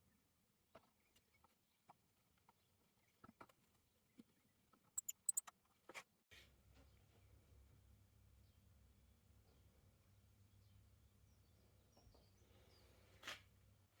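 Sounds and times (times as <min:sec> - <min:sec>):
faint scattered clicks: 0:05.0 - 0:05.5.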